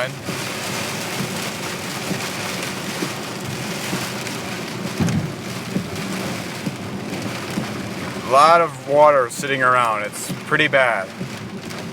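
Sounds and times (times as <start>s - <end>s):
heavy rain on a car: 0.0s - 11.9s
road and engine noise: 0.0s - 11.9s
low thump: 4.9s - 6.0s.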